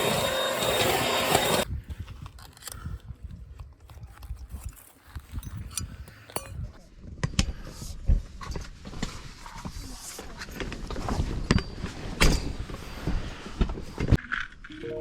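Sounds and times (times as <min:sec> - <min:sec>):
handling and rustling noises: 0:00.8 - 0:06.4.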